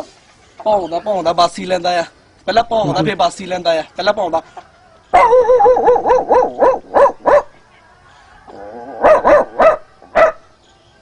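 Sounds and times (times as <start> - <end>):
man imitating dog barks: 2.8 - 3.2
man imitating dog whine: 2.8 - 3.2.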